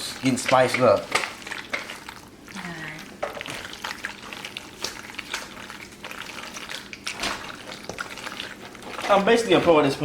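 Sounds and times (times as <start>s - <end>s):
spoon stirring pasta in a pot: 0.0s - 10.0s.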